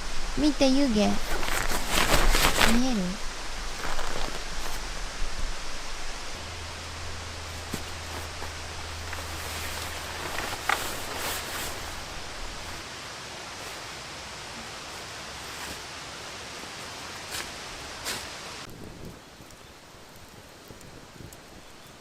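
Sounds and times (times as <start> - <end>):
low hum: 0.0 - 15.5
outdoor hiss: 0.0 - 22.0
short rustles: 1.0 - 12.8.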